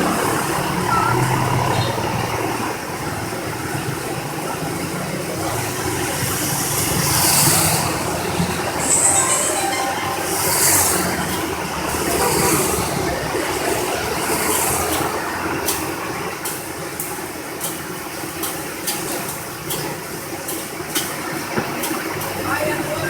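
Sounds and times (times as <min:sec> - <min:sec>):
vehicle engine and road noise: 0:00.0 - 0:08.8
tyres hissing on wet road: 0:00.0 - 0:09.8.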